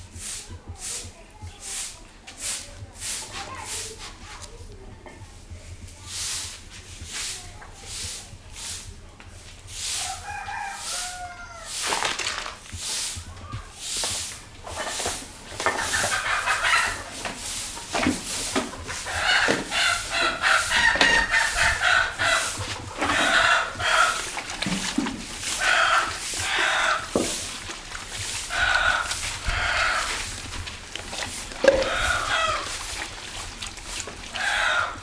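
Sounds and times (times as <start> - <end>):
broom sweeping: 0.0 - 4.5, 5.2 - 35.0
chickens clucking: 9.8 - 12.6, 13.4 - 35.0
rooster crowing: 10.0 - 11.8, 28.5 - 30.1, 31.6 - 32.8, 34.4 - 35.0.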